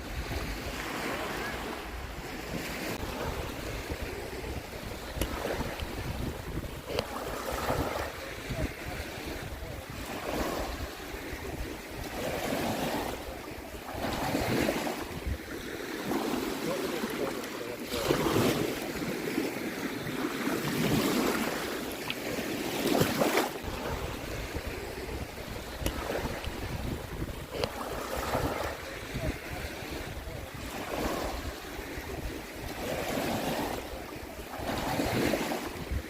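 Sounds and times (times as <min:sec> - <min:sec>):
wind rumble on microphone: 0:00.0 - 0:15.6, 0:22.9 - 0:36.0
waves breaking on shore: 0:00.0 - 0:36.0.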